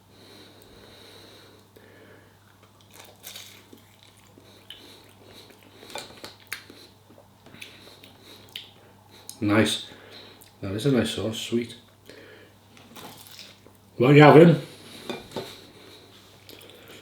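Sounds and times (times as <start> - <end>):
low electrical hum: 0.0 - 17.0
person chewing with crunches: 2.4 - 9.4, 12.0 - 13.8, 14.8 - 17.0.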